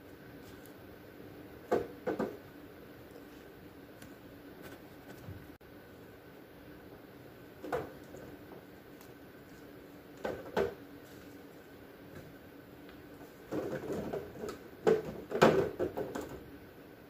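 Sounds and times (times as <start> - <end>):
rustling: 0.0 - 0.9.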